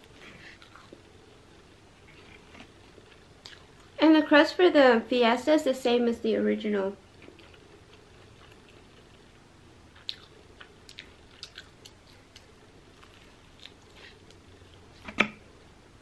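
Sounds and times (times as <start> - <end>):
chewing pizza crust: 0.0 - 1.1, 2.0 - 4.0, 7.2 - 15.0.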